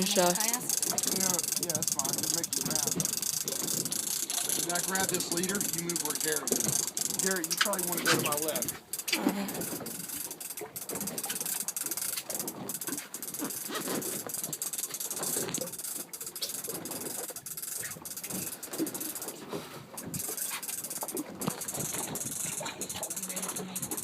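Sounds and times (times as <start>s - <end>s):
handling knocks and rattles: 0.5s - 10.0s.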